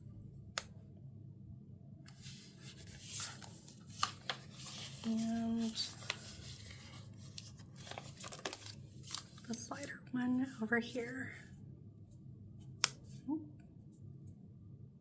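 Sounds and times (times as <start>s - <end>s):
steady low hum: 0.0s - 15.0s
paper rustling: 2.2s - 10.0s.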